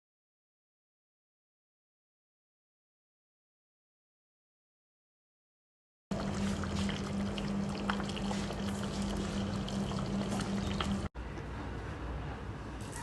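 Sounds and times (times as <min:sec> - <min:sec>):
liquid bubbling in a pot: 0:06.1 - 0:11.1
steady low hum: 0:06.1 - 0:12.5.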